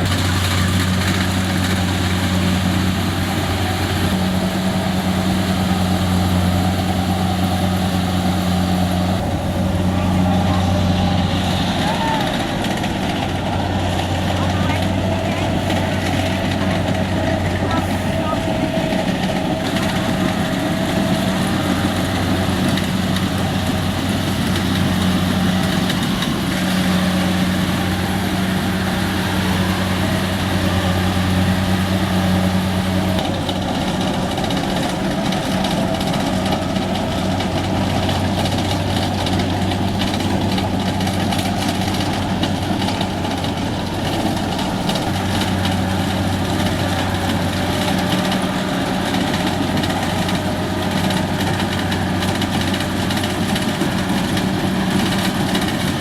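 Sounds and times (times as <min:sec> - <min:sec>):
combine harvester engine running: 0:00.0 - 0:56.0
machine whirring and rattling: 0:00.0 - 0:56.0.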